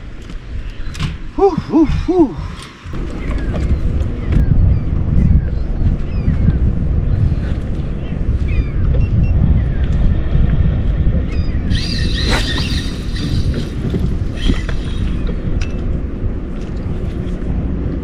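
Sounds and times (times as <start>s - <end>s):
wind buffeting microphone: 0.0s - 18.0s
bird calls: 0.5s - 6.6s, 11.3s - 15.4s.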